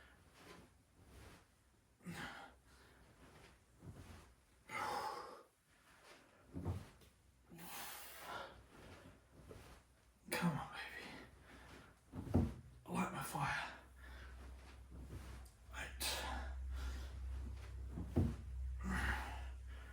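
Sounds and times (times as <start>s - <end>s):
man breathing hard: 18.8s - 19.9s.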